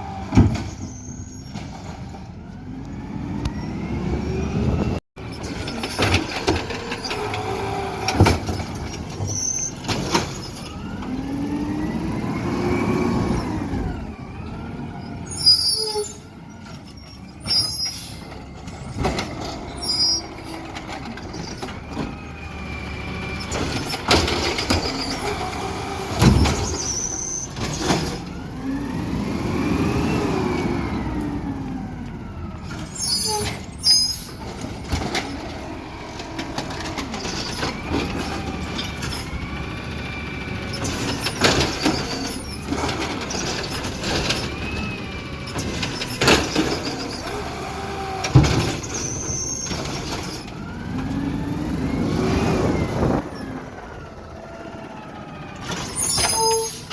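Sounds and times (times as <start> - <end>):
garbage truck engine revving: 0.0 - 56.9
short high squeaks: 0.6 - 1.6, 9.2 - 10.6, 15.1 - 18.3, 19.7 - 20.6, 23.4 - 25.4, 26.5 - 28.0, 32.9 - 34.4, 40.7 - 43.8, 48.8 - 50.4, 55.7 - 56.9.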